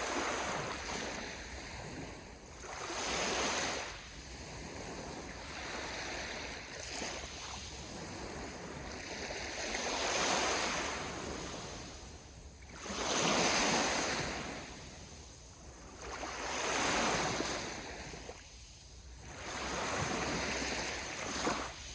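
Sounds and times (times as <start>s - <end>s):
sea waves washing ashore: 0.0s - 21.9s.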